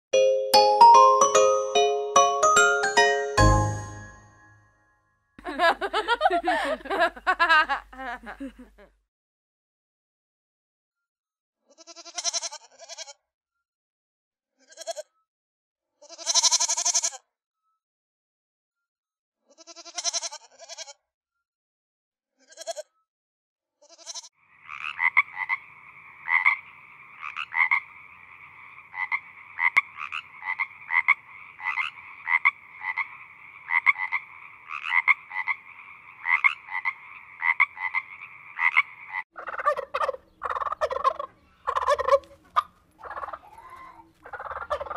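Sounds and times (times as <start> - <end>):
young goat bleating: 11.7 - 13.2, 14.6 - 15.1, 16.0 - 17.2, 19.5 - 21.0, 22.4 - 22.9, 23.8 - 24.3
frog croaking: 24.2 - 43.6, 44.2 - 44.9.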